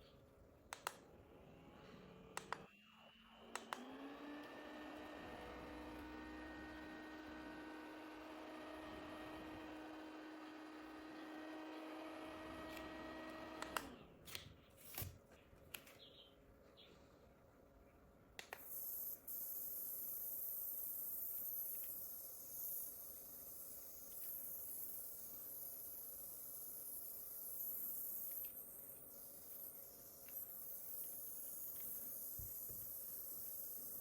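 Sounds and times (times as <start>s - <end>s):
small fan motor humming: 0.7s - 14.2s, 18.4s - 34.0s
steady high spray hiss: 18.6s - 34.0s.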